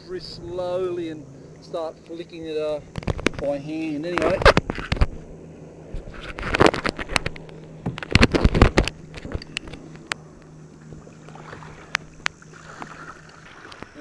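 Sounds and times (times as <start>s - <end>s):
low steady hum: 0.0s - 14.0s
water slapping against kayak hull: 2.9s - 5.3s, 5.9s - 14.0s.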